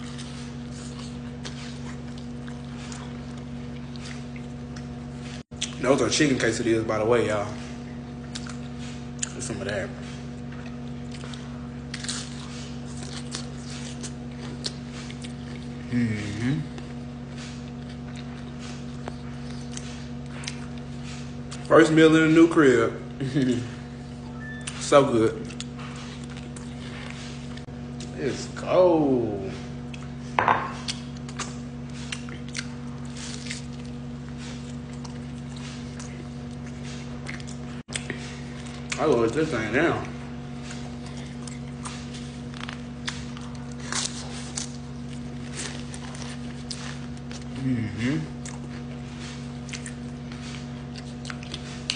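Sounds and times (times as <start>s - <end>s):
steady low hum: 0.0s - 51.9s
chewing mouth smacks: 8.1s - 15.8s, 16.7s - 21.7s, 24.5s - 28.1s, 30.8s - 39.1s, 48.3s - 51.9s.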